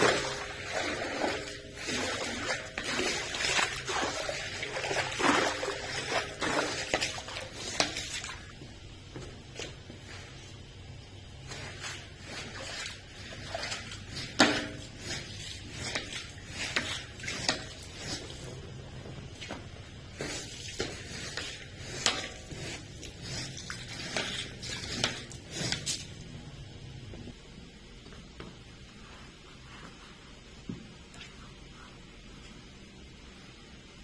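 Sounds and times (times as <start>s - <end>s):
wet swishing and knocking: 0.0s - 10.6s, 11.4s - 26.2s.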